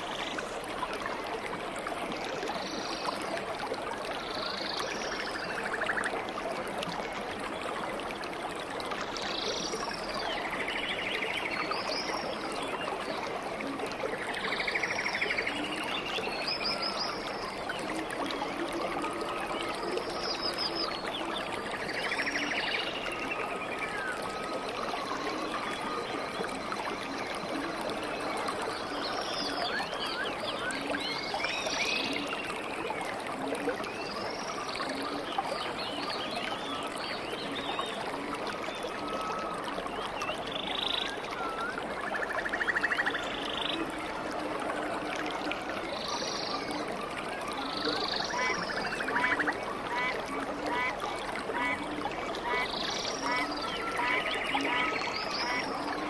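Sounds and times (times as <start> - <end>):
stream water running: 0.0 - 56.0.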